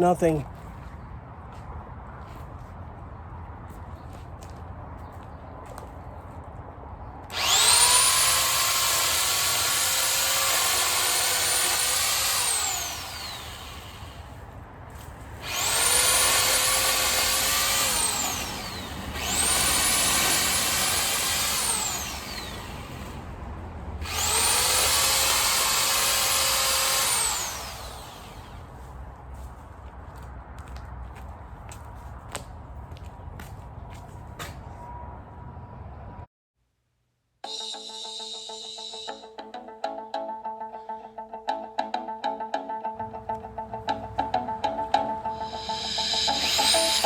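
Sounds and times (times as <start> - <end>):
chainsaw revving: 7.3 - 14.2, 15.4 - 23.3, 24.0 - 28.6, 45.5 - 47.0.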